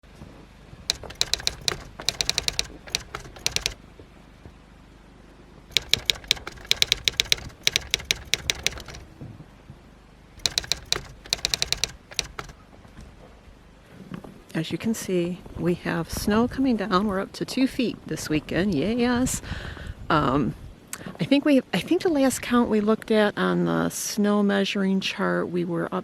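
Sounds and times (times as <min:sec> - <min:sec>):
typewriter keys clacking: 0:00.9 - 0:03.8, 0:05.7 - 0:09.1, 0:10.4 - 0:12.6.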